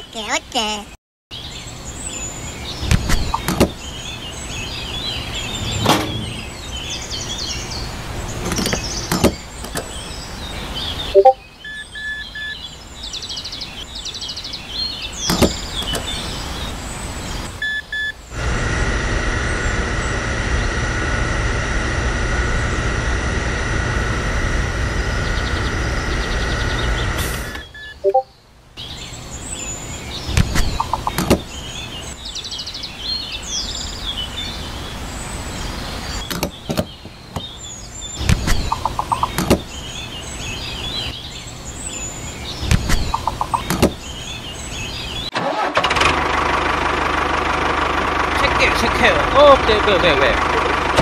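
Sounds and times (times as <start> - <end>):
birds chirping: 0.0 - 18.4, 24.7 - 45.4, 46.6 - 51.0
short electronic beeps: 11.2 - 12.6, 27.7 - 28.3
fuel pump humming and whining: 18.3 - 27.7, 41.7 - 51.0.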